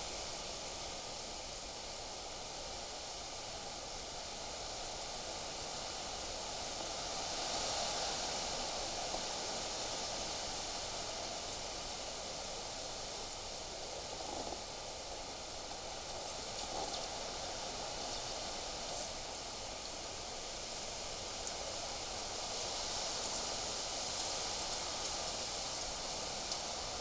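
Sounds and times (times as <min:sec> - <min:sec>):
wind rustling foliage: 0:07.9 - 0:27.0.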